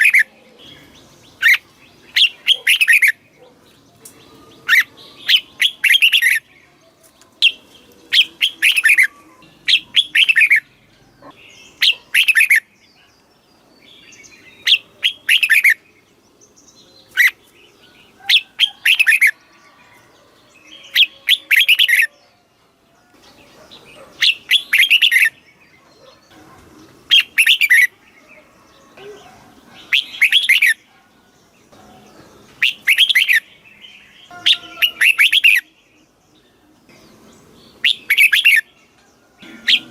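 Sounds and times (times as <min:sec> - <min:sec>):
bulbul warbling song: 0:07.4 - 0:12.7, 0:26.0 - 0:28.0.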